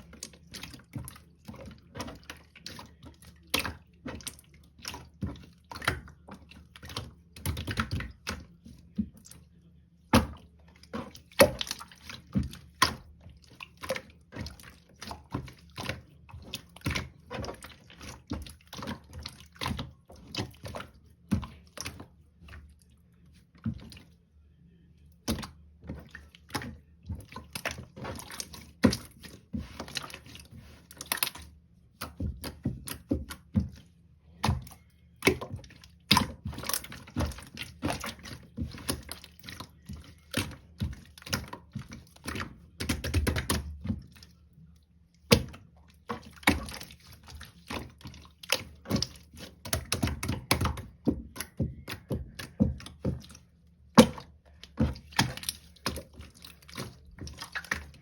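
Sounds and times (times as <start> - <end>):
wet clicking and squishing: 0.0 - 58.0.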